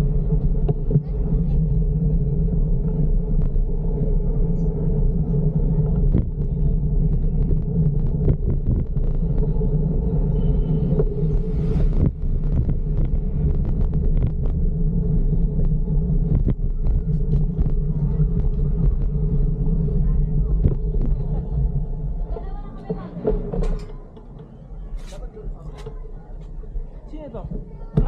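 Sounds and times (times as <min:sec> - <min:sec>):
wind and road rumble: 0:00.0 - 0:28.0.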